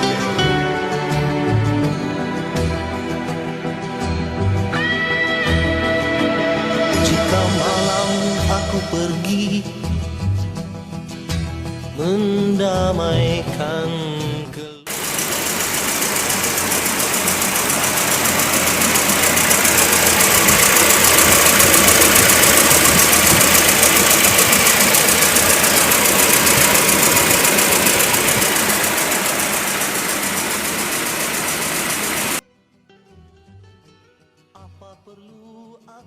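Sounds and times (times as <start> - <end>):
car engine idling: 14.9 - 32.4
rapid valve train ticking: 14.9 - 32.4.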